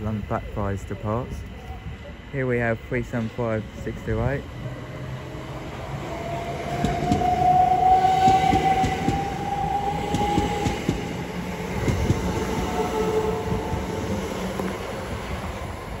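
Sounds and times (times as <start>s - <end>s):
steady high whine: 0.0s - 16.0s
train wheels clicking over rail joints: 6.6s - 12.9s.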